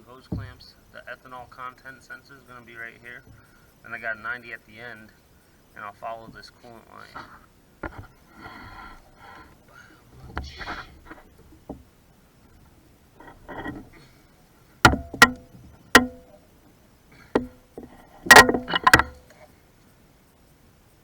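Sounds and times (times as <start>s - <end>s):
hard objects knocking and clinking: 14.9s - 16.3s, 17.4s - 19.2s.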